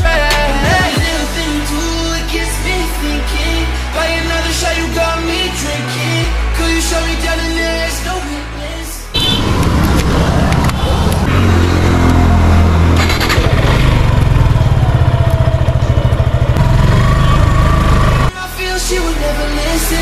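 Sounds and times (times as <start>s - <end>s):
motorcycle engine revving: 9.1s - 18.3s.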